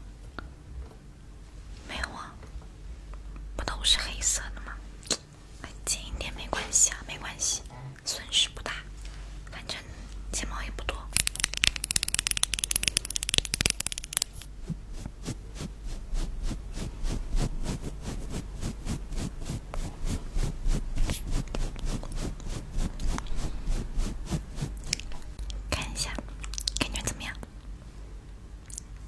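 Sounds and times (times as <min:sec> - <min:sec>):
close scratching and rubbing: 0:11.2 - 0:25.4.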